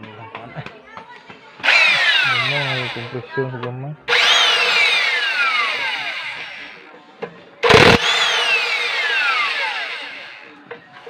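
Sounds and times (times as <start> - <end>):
power tool motor whine: 1.6 - 3.1, 4.1 - 6.8, 7.6 - 10.4
loud rattling burst: 7.6 - 10.4.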